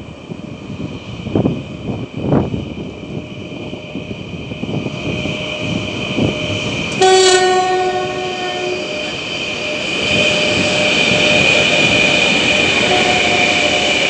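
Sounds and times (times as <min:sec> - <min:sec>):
freight train running: 0:00.0 - 0:14.0
locomotive horn blast: 0:07.0 - 0:09.2, 0:12.6 - 0:14.0.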